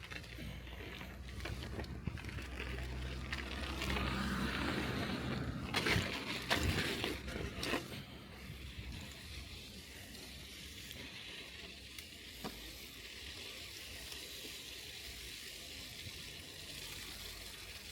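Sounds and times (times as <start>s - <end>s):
bike knocks and rattles: 0.0s - 8.2s
bicycle tyres rolling through slush: 0.0s - 17.9s.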